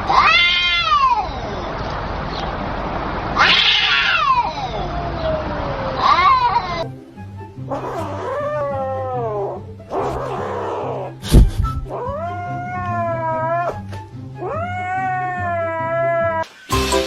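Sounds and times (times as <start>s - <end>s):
cat yowling: 0.0s - 1.7s, 3.4s - 6.9s, 7.7s - 16.4s
background music: 6.7s - 17.0s.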